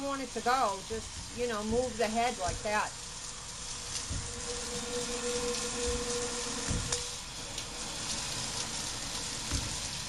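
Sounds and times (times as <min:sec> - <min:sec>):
shower spray hissing: 0:00.0 - 0:10.0
thin steady tone: 0:03.8 - 0:07.3
soft low knocks: 0:04.0 - 0:07.1.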